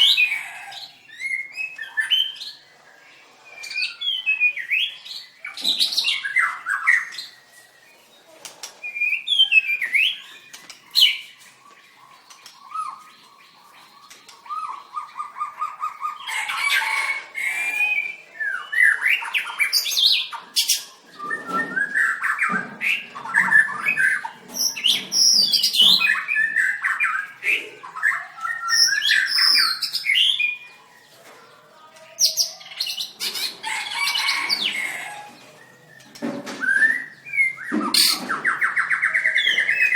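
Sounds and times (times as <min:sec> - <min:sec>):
bird singing whistles and chirps: 0:01.1 - 0:02.6, 0:17.5 - 0:30.7, 0:32.2 - 0:39.9.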